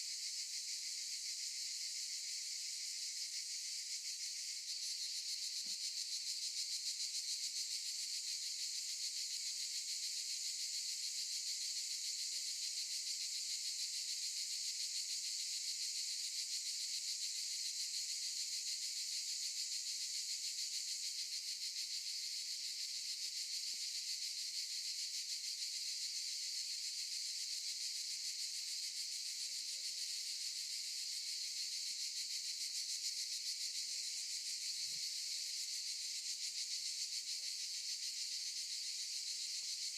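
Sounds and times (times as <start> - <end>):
cicadas buzzing: 30.4 - 39.9.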